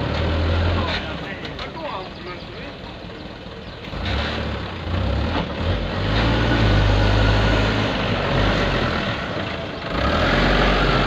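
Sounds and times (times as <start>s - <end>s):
diesel truck engine under load: 0.0s - 11.0s.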